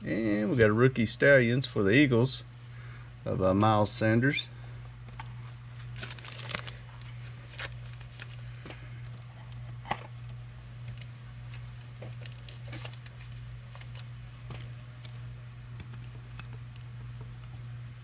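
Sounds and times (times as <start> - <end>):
low electrical hum: 0.0 - 18.0
card pack crinkling and tearing: 5.1 - 14.1.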